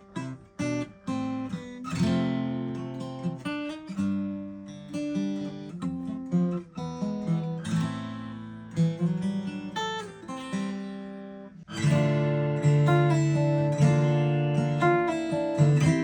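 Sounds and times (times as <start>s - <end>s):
guitar picked notes: 0.0s - 16.0s
acoustic guitar chords strummed: 10.4s - 16.0s.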